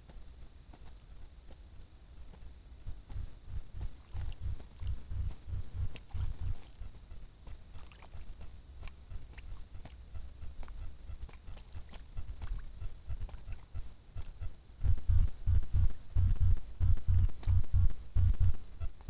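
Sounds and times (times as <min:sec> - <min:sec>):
low rumble: 0:04.4 - 0:06.6, 0:14.8 - 0:19.0.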